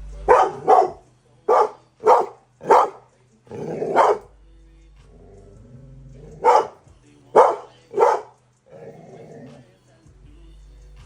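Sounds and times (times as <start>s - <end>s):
dog barking: 0.2s - 4.3s, 6.2s - 8.4s.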